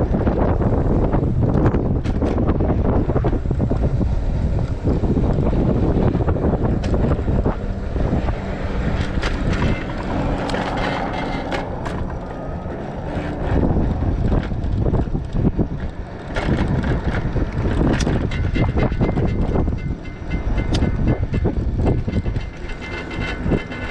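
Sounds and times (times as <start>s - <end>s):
wind buffeting microphone: 0.0s - 23.9s
clicks and knocks: 8.2s - 13.6s.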